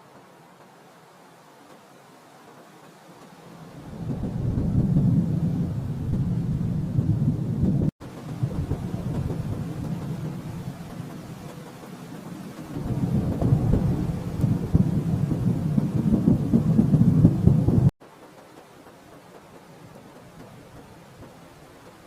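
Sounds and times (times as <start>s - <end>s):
thunder rumbling: 3.6s - 17.9s.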